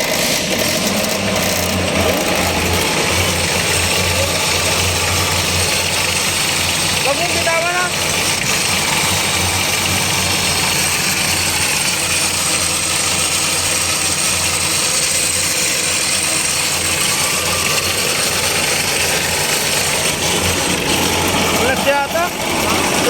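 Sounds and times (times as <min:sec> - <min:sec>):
noisy transmission whine: 0:00.0 - 0:23.0
tractor diesel engine running: 0:00.0 - 0:23.0.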